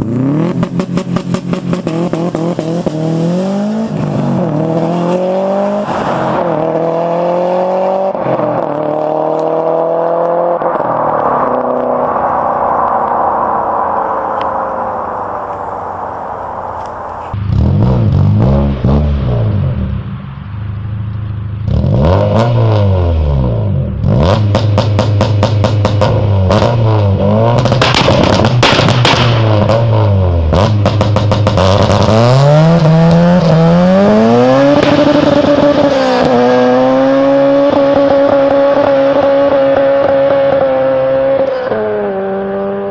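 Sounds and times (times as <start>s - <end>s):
car engine revving: 0.0s - 42.9s
exhaust pops and crackles: 24.4s - 26.8s, 27.5s - 32.2s, 34.7s - 36.4s.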